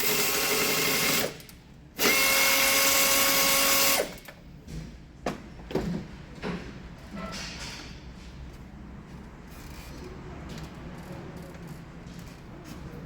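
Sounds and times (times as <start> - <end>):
electric power drill running: 0.0 - 1.4, 2.0 - 4.2.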